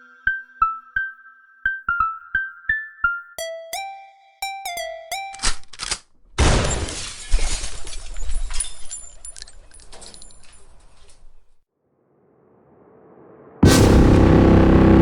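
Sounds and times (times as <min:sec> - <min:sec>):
glass shattering: 0:06.4 - 0:10.6
faint rising swell: 0:11.9 - 0:15.0.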